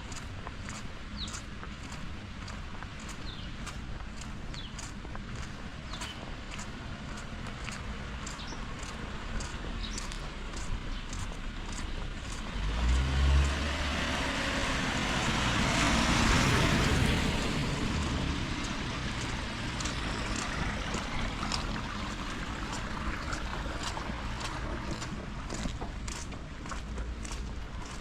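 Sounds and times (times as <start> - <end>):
car tyres hissing on wet road: 12.5 - 25.1.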